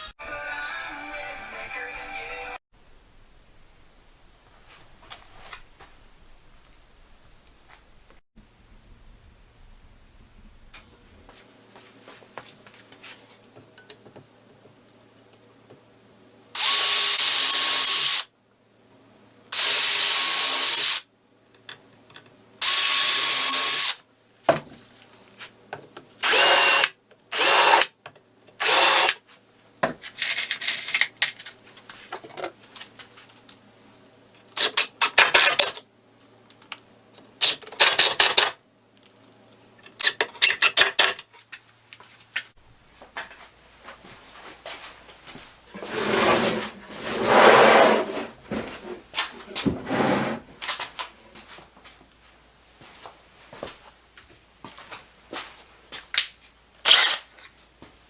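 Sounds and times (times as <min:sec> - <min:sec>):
cordless drill whining: 0:22.6 - 0:24.0, 0:26.2 - 0:27.8, 0:28.6 - 0:29.2.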